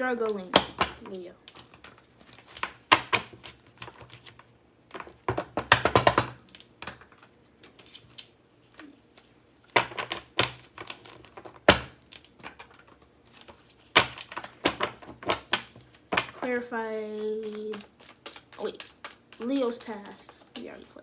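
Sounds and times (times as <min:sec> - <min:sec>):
cards being shuffled: 0:00.2 - 0:21.0.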